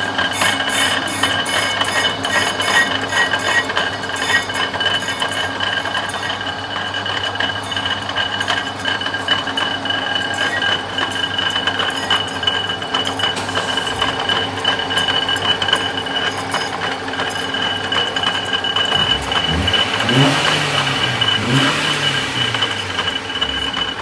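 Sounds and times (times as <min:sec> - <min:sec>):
cutting tool scraping chatter: 0:00.0 - 0:06.5
low motor hum: 0:13.4 - 0:16.5, 0:18.9 - 0:24.0.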